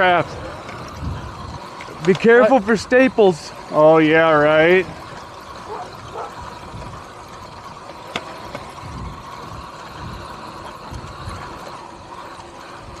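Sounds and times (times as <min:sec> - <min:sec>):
electric motor whine: 0:00.0 - 0:13.0
wind gusting on microphone: 0:00.2 - 0:01.8, 0:08.7 - 0:11.6.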